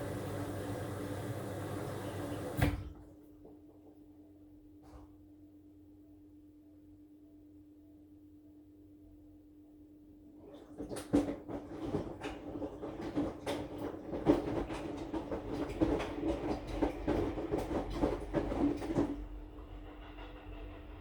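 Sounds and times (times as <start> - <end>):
washing machine motor hum: 0.0 - 4.0, 10.3 - 21.0.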